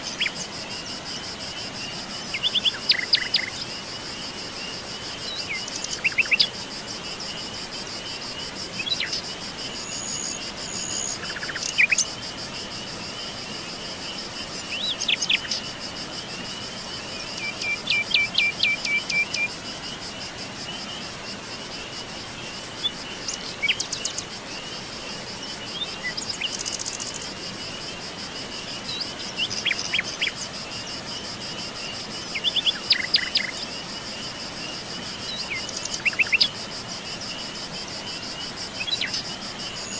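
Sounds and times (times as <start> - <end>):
high-pitched insect trill: 0.0 - 39.9.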